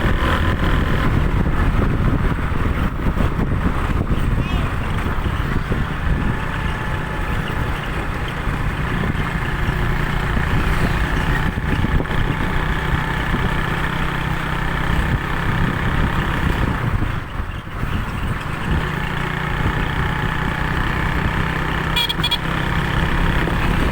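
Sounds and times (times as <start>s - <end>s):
vehicle engine running: 0.0s - 23.9s.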